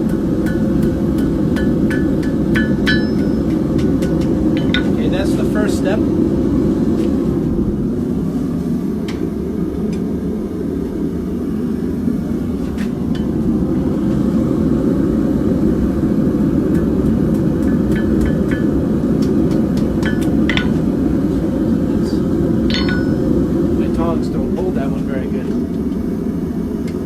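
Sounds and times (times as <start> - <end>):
forge roaring: 0.0 - 26.8
metallic tool taps: 22.7 - 23.3.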